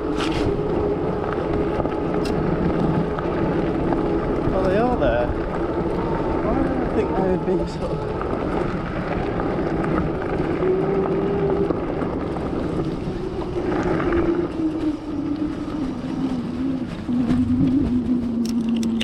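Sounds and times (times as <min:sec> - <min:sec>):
electric motor whine: 0:00.0 - 0:19.0
rushing wind: 0:00.0 - 0:19.0.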